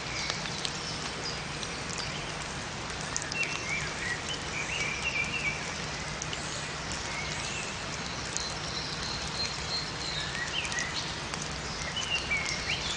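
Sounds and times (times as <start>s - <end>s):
raindrop ticks: 0.0s - 12.9s
steady rain in forest: 0.0s - 12.9s
small birds chirping: 6.4s - 12.9s.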